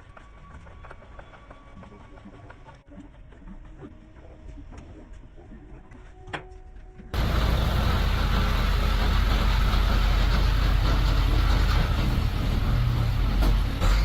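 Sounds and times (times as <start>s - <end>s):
truck engine idling: 7.2s - 14.0s.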